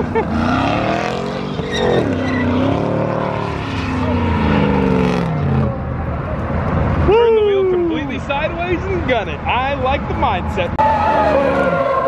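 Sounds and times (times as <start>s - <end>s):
car engine revving: 0.0s - 6.5s
tyres screeching: 0.3s - 5.8s.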